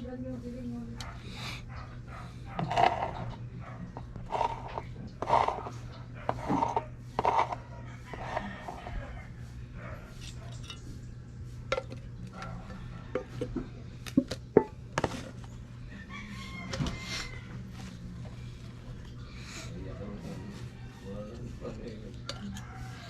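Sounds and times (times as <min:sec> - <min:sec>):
faint voices: 0:14.7 - 0:23.0.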